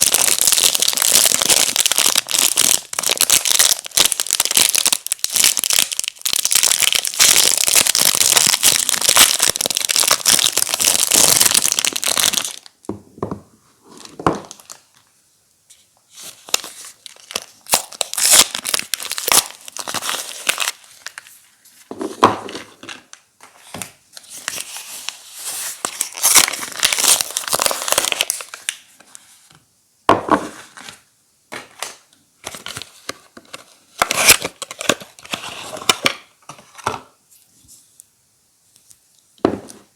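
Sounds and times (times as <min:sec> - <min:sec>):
wrapper tearing: 0:00.0 - 0:12.7, 0:16.2 - 0:21.4, 0:24.3 - 0:28.8, 0:34.0 - 0:36.0
soap wrappers crinkling: 0:00.0 - 0:12.8, 0:16.2 - 0:21.4, 0:24.2 - 0:29.1, 0:32.4 - 0:36.2.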